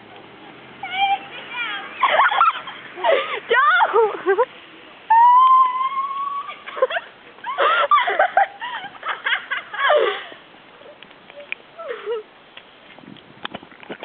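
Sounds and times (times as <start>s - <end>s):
girls shrieking and shouting: 0.8s - 4.3s, 5.1s - 6.7s
girl's high squeal: 5.1s - 6.6s.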